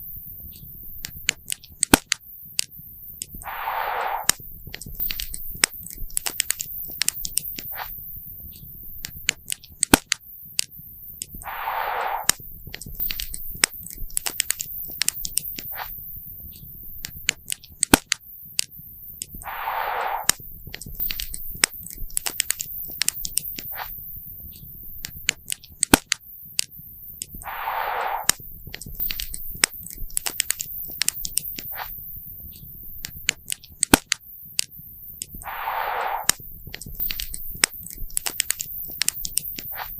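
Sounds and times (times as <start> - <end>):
short hiss: 3.4 - 4.4, 11.4 - 12.4, 19.4 - 20.4, 27.4 - 28.5, 35.4 - 38.0.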